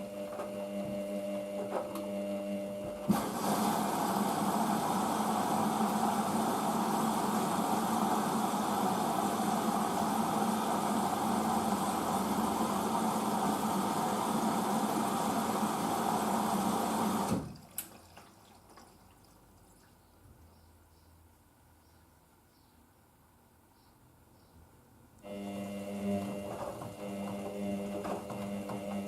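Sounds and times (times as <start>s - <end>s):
washing machine water rushing: 3.0s - 19.9s.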